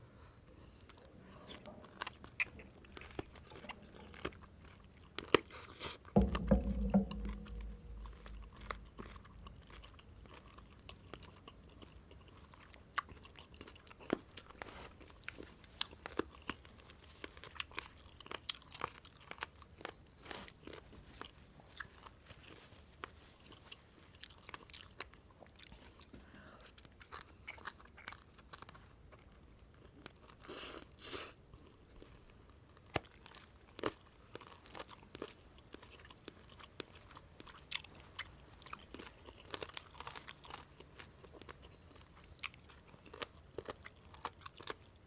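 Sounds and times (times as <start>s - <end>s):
person chewing food: 0.9s - 6.3s, 7.4s - 45.0s
deep thud: 6.2s - 10.5s.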